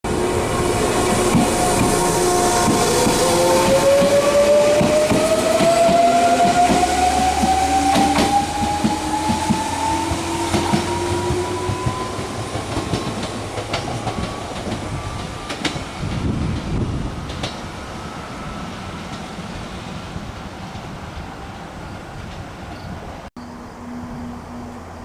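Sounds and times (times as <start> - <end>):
train wheels clicking over rail joints: 1.0 - 17.7.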